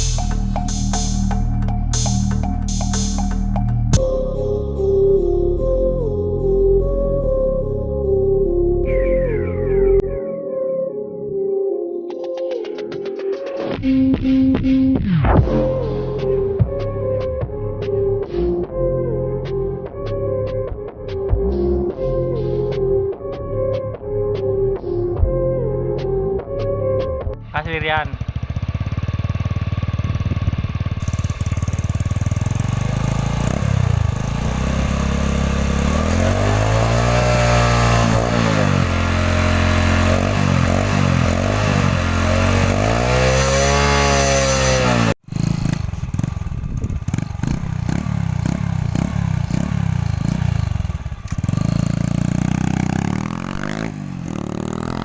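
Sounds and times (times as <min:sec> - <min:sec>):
motorcycle engine revving: 0:00.0 - 0:04.2, 0:28.0 - 0:55.0.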